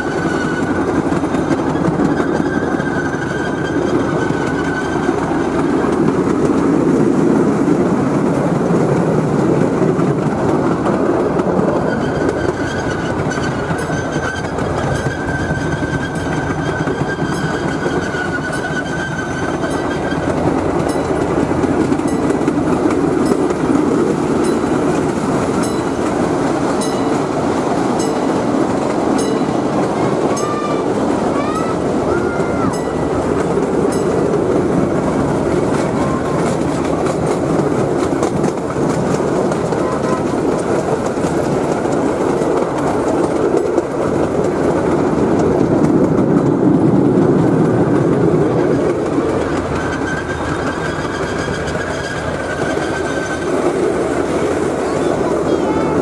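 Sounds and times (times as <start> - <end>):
thin wheel squeal: 0.0 - 5.3, 11.8 - 20.4, 49.8 - 53.4
train rumbling on track: 0.0 - 56.0
wheels clicking over rail joints: 0.0 - 56.0.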